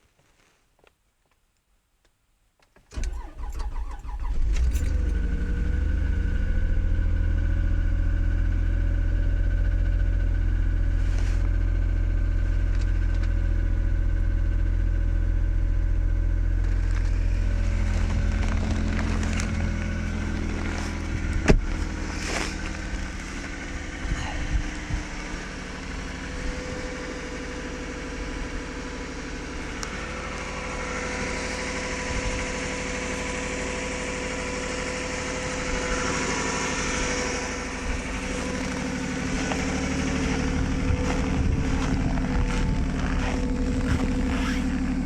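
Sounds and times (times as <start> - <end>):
car engine idling: 2.8 - 45.0
starter cranking engine: 2.9 - 6.0, 35.7 - 45.0.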